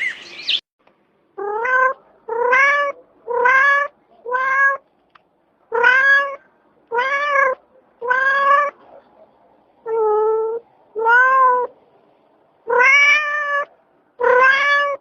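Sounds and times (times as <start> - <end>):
cat meowing: 1.4 - 4.8, 5.7 - 8.8, 9.8 - 11.7, 12.6 - 15.0.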